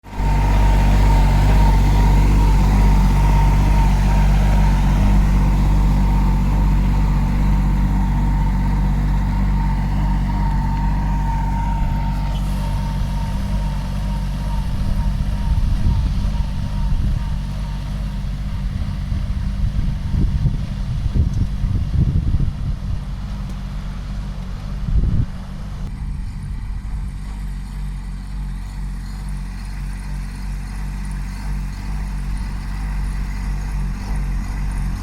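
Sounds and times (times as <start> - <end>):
high whine: 0.0 - 23.6
tractor diesel engine running: 0.0 - 35.0.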